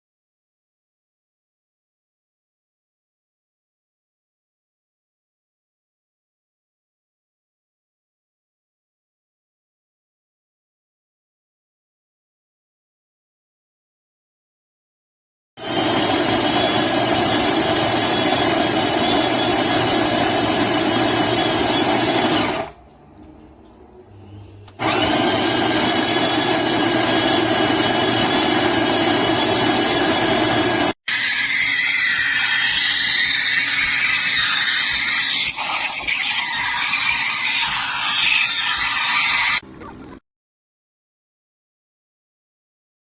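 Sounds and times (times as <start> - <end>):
espresso machine motor buzz: 15.6 - 22.6, 24.8 - 30.9.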